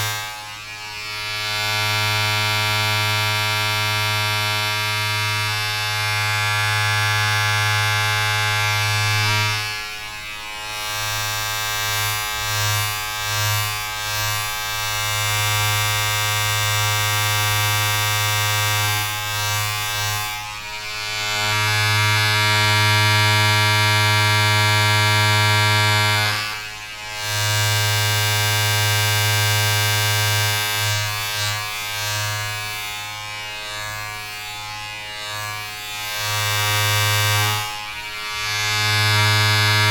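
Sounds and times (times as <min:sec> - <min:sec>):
electric appliance buzzing: 0:00.0 - 0:39.9.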